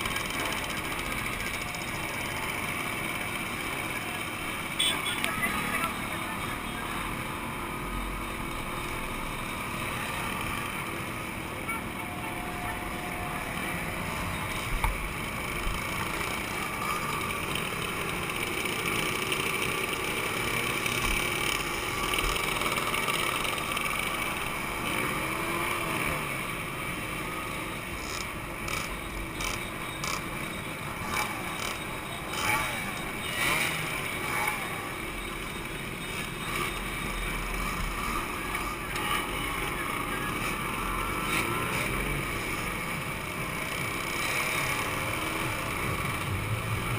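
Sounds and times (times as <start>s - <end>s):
two-stroke motorcycle engines running: 0.0s - 46.9s.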